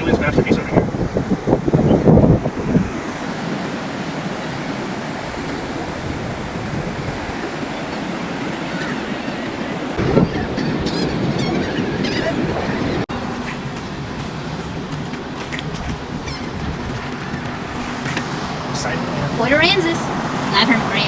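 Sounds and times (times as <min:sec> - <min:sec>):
surf washing on shore: 0:00.0 - 0:21.0
wind buffeting microphone: 0:00.0 - 0:21.0.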